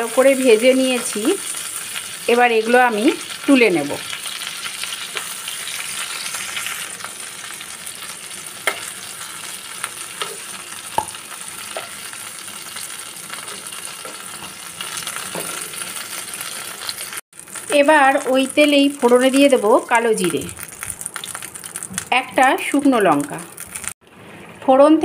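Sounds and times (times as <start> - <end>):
vegetables sizzling in oil: 0.0 - 24.0
utensils clicking on pan: 8.6 - 9.0, 9.8 - 12.0.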